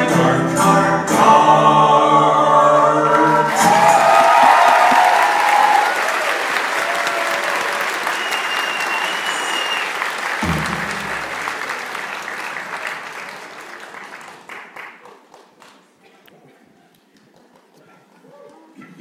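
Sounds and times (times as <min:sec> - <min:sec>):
audience applauding and cheering: 0:03.1 - 0:16.0
audience shouts: 0:03.3 - 0:09.9.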